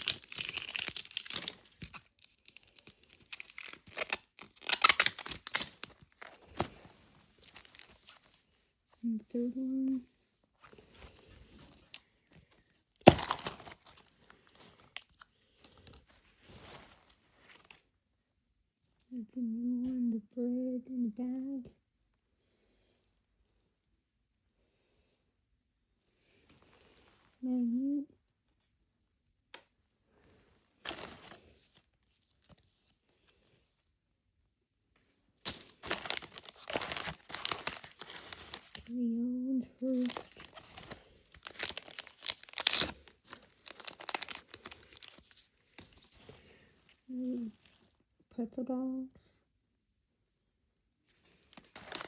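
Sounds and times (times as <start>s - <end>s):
plastic wrapper crinkling and tearing: 0.0s - 8.3s, 13.0s - 16.0s, 30.8s - 31.8s, 35.4s - 39.0s, 39.8s - 46.4s, 51.4s - 52.0s.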